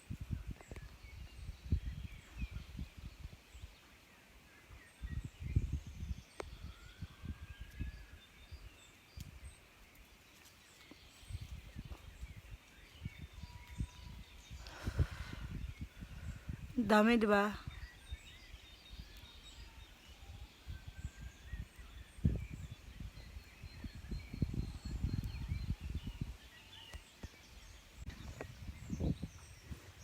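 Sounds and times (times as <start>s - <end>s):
low rumbling on microphone: 11.2s - 16.8s, 20.2s - 26.4s, 27.6s - 30.0s.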